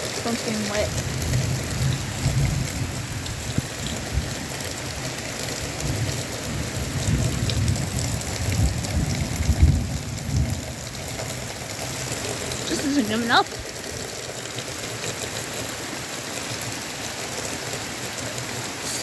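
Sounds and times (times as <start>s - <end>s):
heavy rain pouring: 0.0s - 19.0s
low rumbling thunder: 0.5s - 14.1s.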